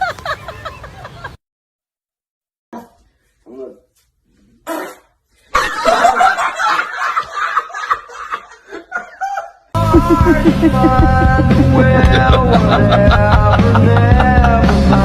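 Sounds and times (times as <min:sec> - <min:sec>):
person laughing: 0:07.6 - 0:15.0
loud music: 0:09.8 - 0:15.0.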